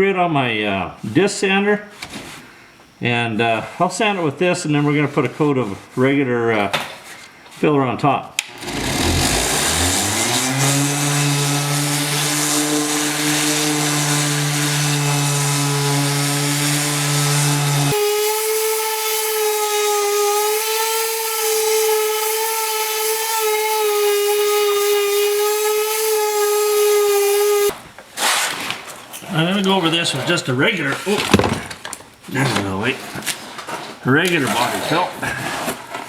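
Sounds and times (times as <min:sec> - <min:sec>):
disc sander on body filler: 0:08.5 - 0:27.7.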